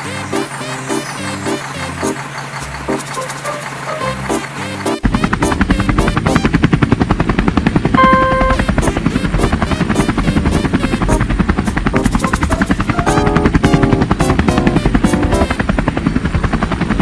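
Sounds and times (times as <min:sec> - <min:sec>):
helicopter rotor chopping: 0:00.0 - 0:17.0
short beep: 0:08.0 - 0:08.7.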